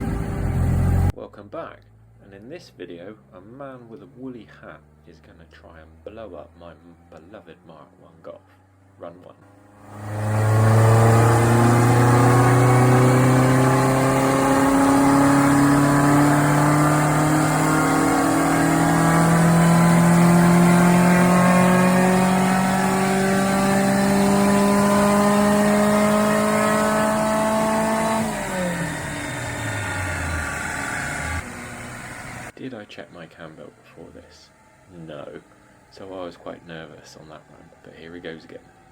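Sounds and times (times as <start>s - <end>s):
car engine revving at full throttle: 0.0s - 1.1s, 9.6s - 32.5s.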